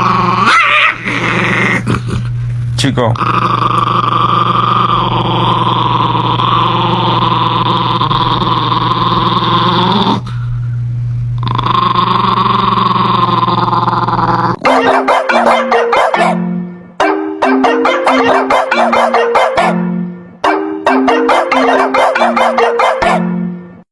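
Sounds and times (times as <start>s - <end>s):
dog growling: 0.0s - 2.5s, 3.1s - 10.3s, 11.4s - 14.8s
marimba-like musical notes: 17.0s - 19.8s, 20.8s - 22.8s.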